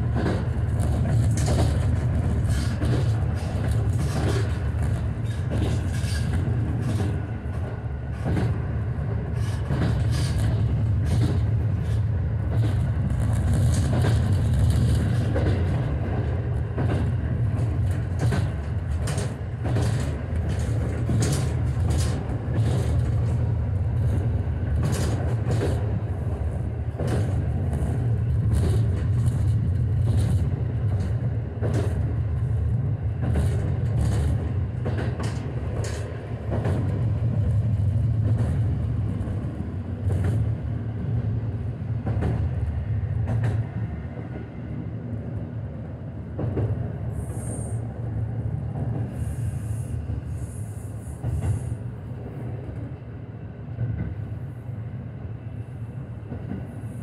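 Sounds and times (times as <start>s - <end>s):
railcar low rumble: 0.0s - 57.0s
wheels clicking over rail joints: 16.8s - 23.4s.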